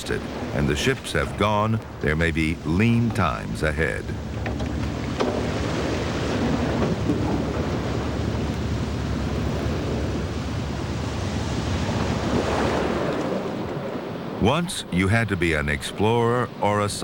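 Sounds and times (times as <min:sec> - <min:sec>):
ocean waves: 0:00.0 - 0:17.0.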